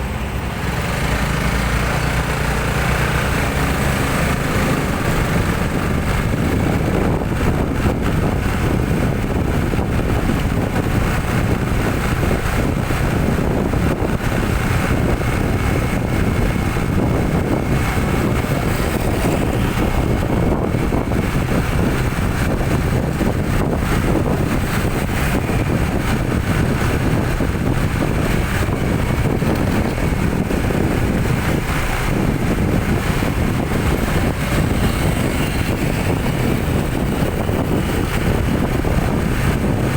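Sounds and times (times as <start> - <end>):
road noise: 0.0 - 39.9
vehicle engine rumble: 0.0 - 39.9
wind rushing over microphone: 0.0 - 39.9.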